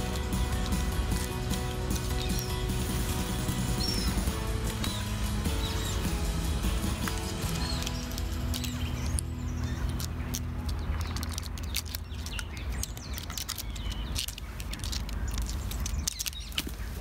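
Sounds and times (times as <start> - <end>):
steady low rumble: 0.0 - 16.5
small birds chirping: 0.0 - 17.0
cat claws scratching tree bark: 5.9 - 17.0.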